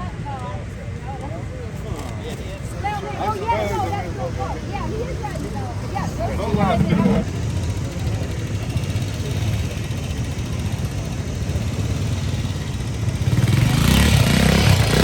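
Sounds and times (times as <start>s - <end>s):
motorcycle engine running: 4.3s - 15.0s.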